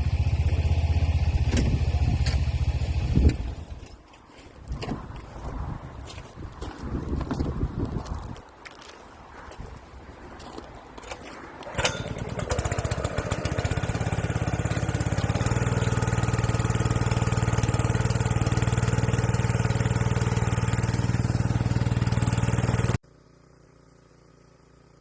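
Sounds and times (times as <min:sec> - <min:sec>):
small gasoline engine running: 0:00.0 - 0:03.7, 0:11.6 - 0:25.0.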